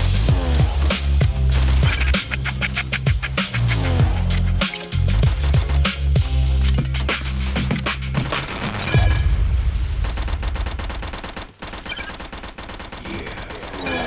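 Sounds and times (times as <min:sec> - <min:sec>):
deep bass: 0:00.0 - 0:08.4
rapid sharp crackling: 0:00.0 - 0:08.9, 0:09.8 - 0:13.8.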